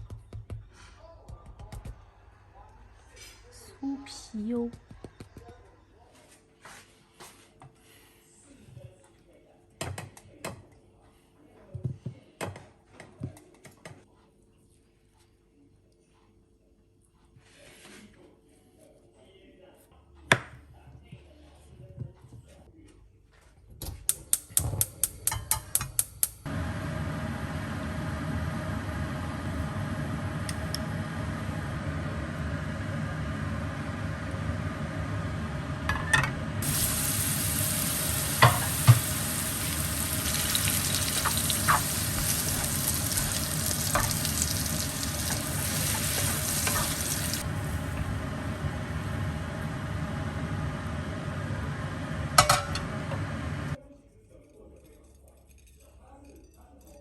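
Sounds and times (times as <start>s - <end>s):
food sizzling in a frying pan: 26.6s - 53.8s.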